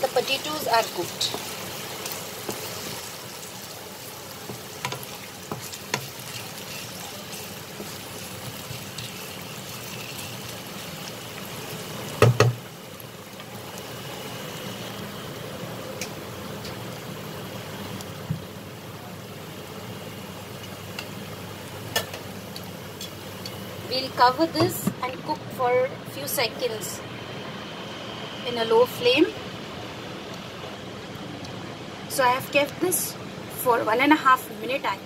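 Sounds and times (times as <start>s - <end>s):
food sizzling in a pan: 0.0s - 18.3s.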